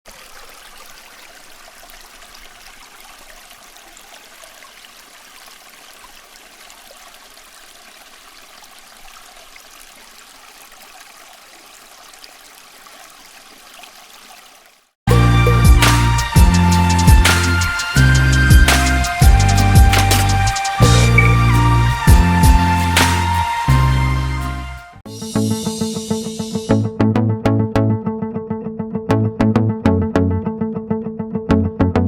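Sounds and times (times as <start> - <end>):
tabletop fountain water trickling: 0.1 - 15.0.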